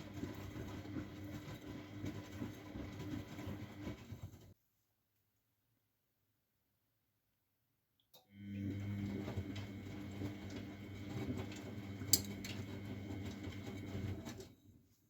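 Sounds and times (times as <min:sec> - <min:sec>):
washing machine running: 0:00.0 - 0:04.6, 0:08.3 - 0:14.7.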